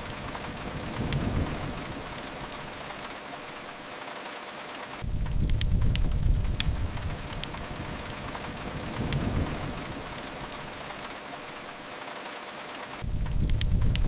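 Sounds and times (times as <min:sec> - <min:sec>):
steady rain: 0:00.0 - 0:14.0
wood fire crackling: 0:00.0 - 0:14.0
deep rumble: 0:05.0 - 0:10.8, 0:13.0 - 0:14.0.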